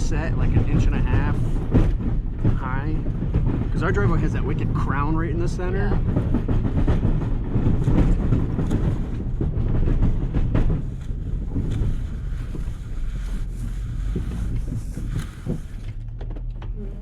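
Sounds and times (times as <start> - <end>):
vehicle engine running: 0.0 - 17.0
plow blade scraping gravel: 10.8 - 16.0.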